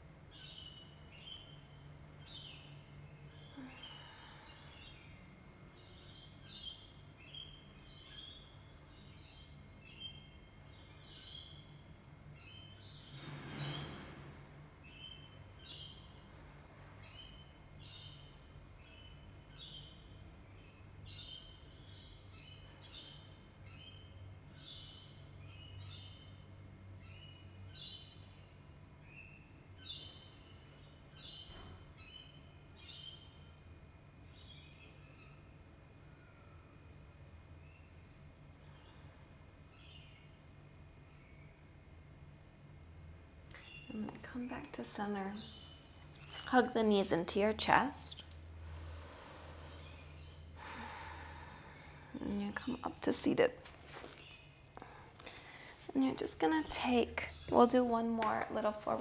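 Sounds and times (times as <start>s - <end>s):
faint low hum: 0.0s - 59.0s
bird chirping: 0.3s - 14.1s, 14.8s - 37.0s, 43.5s - 53.5s.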